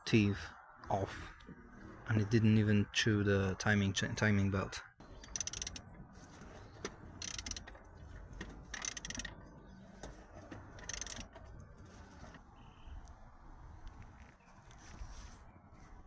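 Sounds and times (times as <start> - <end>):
socket ratchet clicking: 5.2 - 5.9, 7.2 - 7.7, 8.7 - 9.4, 10.8 - 11.3.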